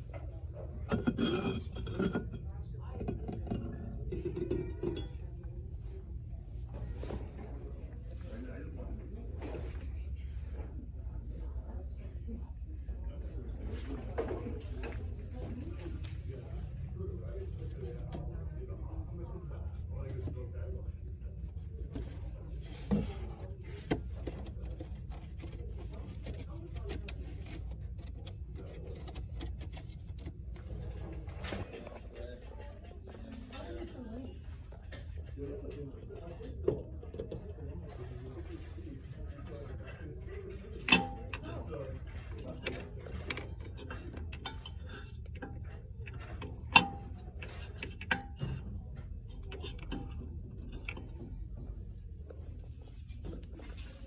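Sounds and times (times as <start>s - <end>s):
steady low hum: 0.0s - 54.0s
dishes and glassware clinking: 0.2s - 6.0s, 39.4s - 51.8s.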